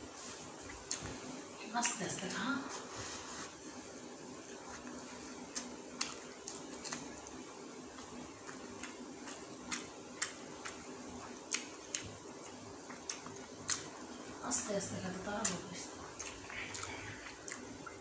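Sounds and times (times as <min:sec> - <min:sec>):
steady low hum: 0:00.0 - 0:18.0
person chewing with mouth clicks: 0:04.7 - 0:14.0, 0:15.4 - 0:18.0
lip smacks: 0:05.5 - 0:07.4, 0:08.4 - 0:14.0.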